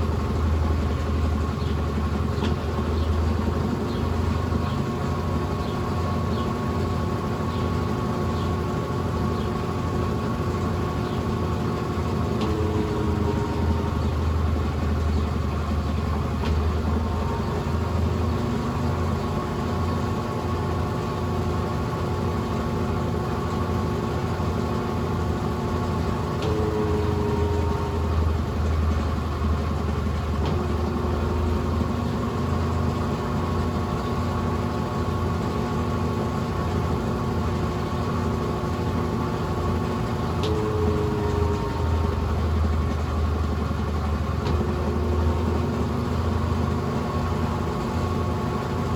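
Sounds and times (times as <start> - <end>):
washing machine motor hum: 0.0 - 48.9.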